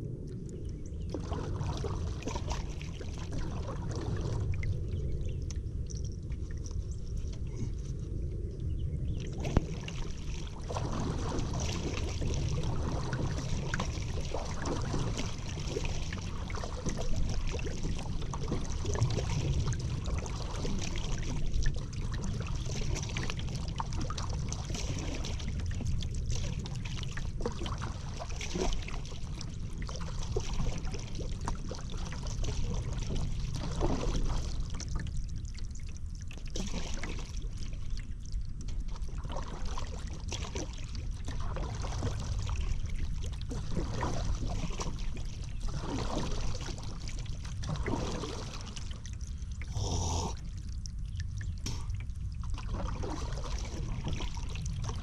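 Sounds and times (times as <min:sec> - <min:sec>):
steady low rumble: 0:00.0 - 0:24.8
water splashing: 0:01.0 - 0:04.9, 0:09.2 - 0:38.0, 0:38.6 - 0:55.0.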